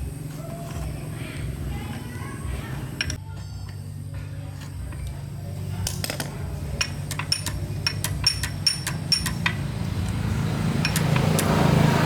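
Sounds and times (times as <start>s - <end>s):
steady low hum: 0.0s - 12.0s
metallic tool clinks: 6.8s - 9.6s.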